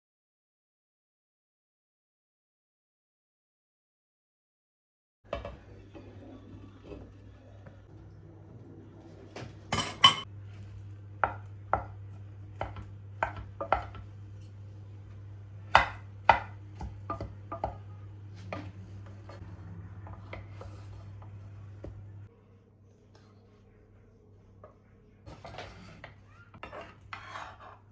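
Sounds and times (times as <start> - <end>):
dishes and cutlery clinking: 9.7 - 10.3.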